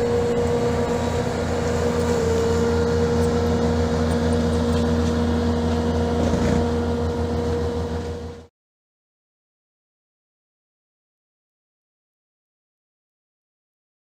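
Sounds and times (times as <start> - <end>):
mower engine whining: 0.0 - 8.5.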